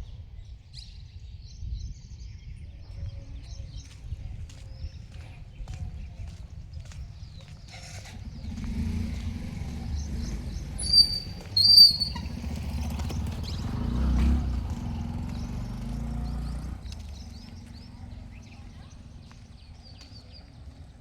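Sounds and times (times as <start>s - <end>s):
bird high-pitched calls: 10.6s - 12.5s.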